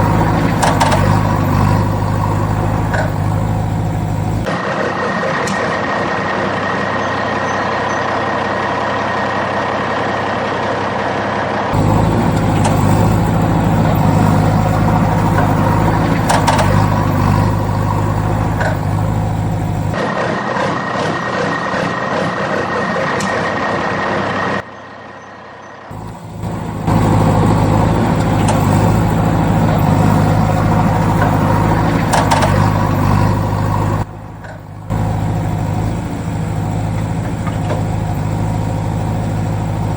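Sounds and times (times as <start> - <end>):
vehicle engine humming with whine: 0.0 - 20.2, 25.9 - 39.9.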